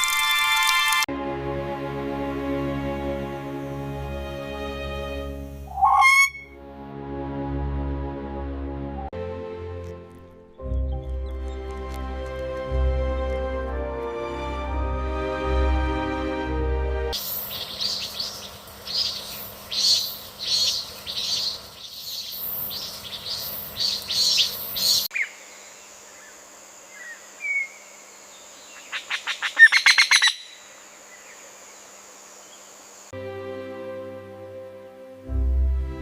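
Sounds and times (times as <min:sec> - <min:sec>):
background music: 0:00.0 - 0:17.2, 0:33.2 - 0:36.0
birds calling: 0:05.7 - 0:06.6, 0:17.2 - 0:25.4
faint chirps: 0:17.2 - 0:29.1.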